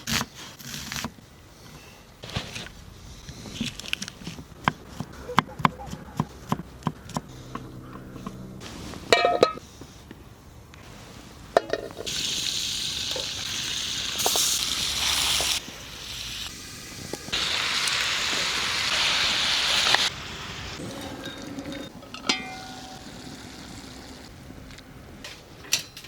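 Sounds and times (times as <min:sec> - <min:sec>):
food sizzling in a pan: 0:12.0 - 0:20.8.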